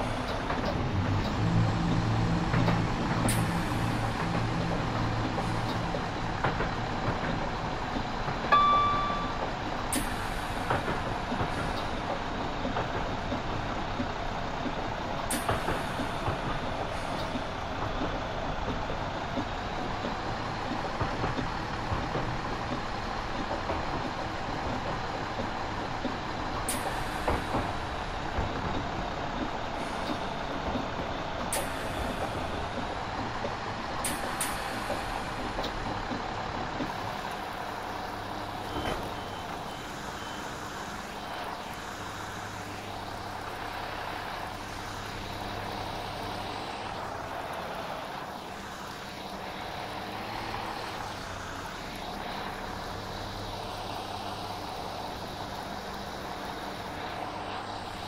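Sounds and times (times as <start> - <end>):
diesel train running: 0.0 - 58.0
short beep: 8.6 - 9.4.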